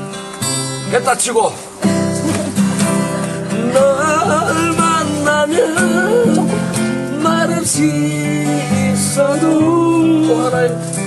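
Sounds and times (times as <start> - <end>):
acoustic guitar strumming: 0.0 - 11.0
person singing: 3.1 - 11.0.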